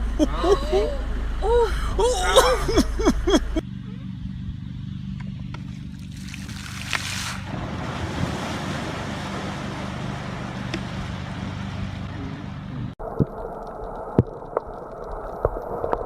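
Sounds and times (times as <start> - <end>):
low motor hum: 0.0 - 16.0
wind: 0.0 - 16.0
water noise: 5.6 - 16.0.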